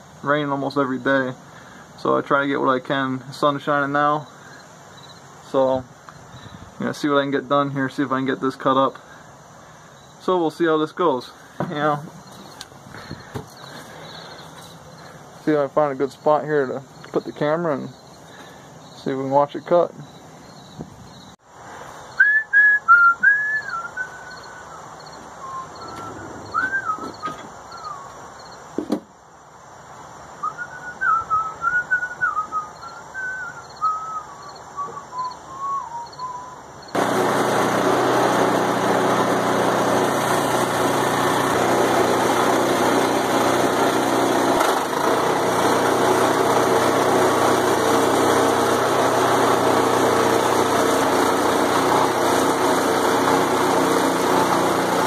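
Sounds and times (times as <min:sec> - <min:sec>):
person whistling sliding notes: 0:22.2 - 0:28.2, 0:30.4 - 0:36.6
small gas engine running: 0:25.8 - 0:27.0, 0:37.0 - 0:55.0.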